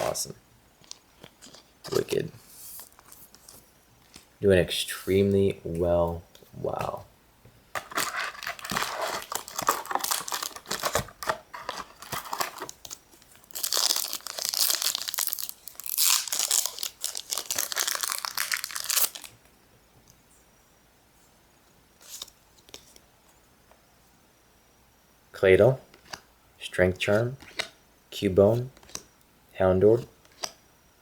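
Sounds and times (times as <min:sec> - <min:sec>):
foil wrapper tearing and crinkling: 0:07.8 - 0:19.4.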